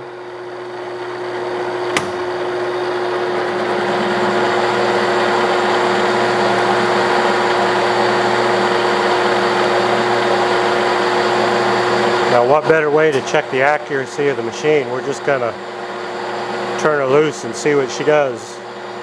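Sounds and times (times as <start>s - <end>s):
sharp click: 1.9s - 2.5s.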